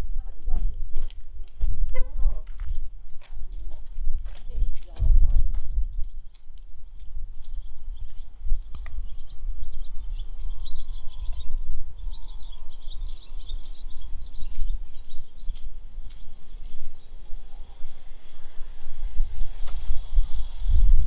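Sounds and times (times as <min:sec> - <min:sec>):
steady low rumble: 0:00.0 - 0:21.0
small birds chirping: 0:05.7 - 0:20.5.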